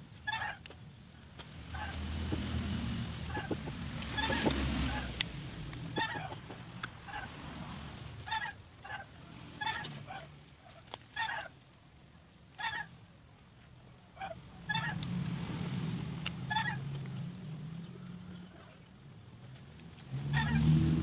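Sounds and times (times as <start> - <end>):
bird calling: 3.3 - 5.2, 5.9 - 7.4, 16.4 - 18.9.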